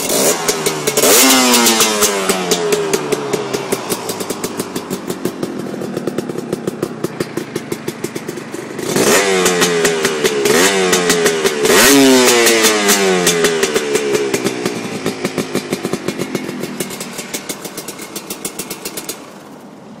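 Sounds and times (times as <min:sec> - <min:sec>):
motorcycle engine idling and revving: 0:00.0 - 0:20.0.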